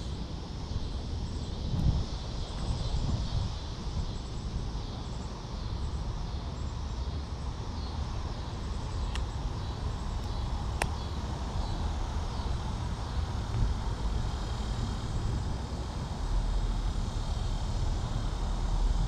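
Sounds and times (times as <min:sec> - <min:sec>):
sharp clicks: 0:10.2 - 0:11.0.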